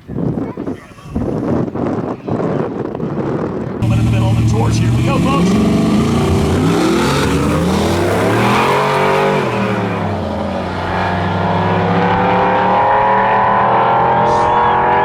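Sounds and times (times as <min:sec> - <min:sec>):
drag racing engines at full throttle: 0:03.8 - 0:15.0.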